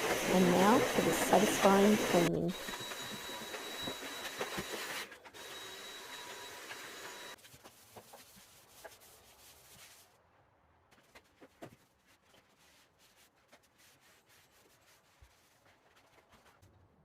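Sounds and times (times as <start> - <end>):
vacuum cleaner whining: 0.0 - 7.4.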